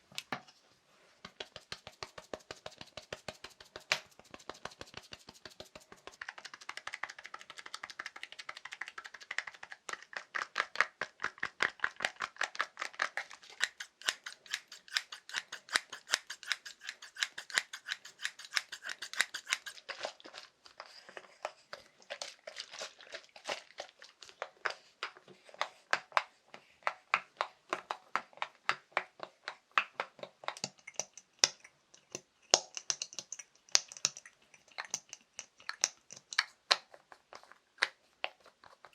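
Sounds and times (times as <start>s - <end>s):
tapping on small objects: 1.2s - 20.1s, 26.9s - 38.9s.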